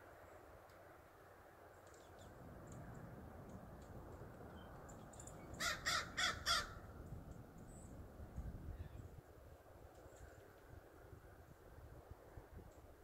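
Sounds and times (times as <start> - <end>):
low outdoor rumble: 0.0 - 13.0
harsh bird calls: 4.6 - 6.9.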